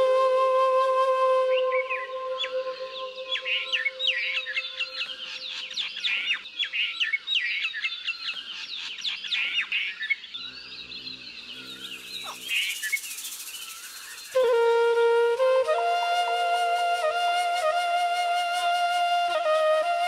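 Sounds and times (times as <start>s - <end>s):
songbirds chirping: 1.2s - 15.1s.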